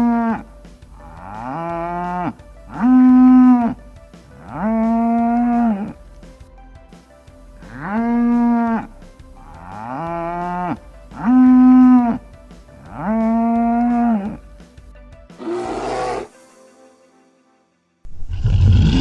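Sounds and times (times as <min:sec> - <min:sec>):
cattle mooing: 0:00.0 - 0:00.4, 0:01.1 - 0:03.6, 0:15.4 - 0:16.3.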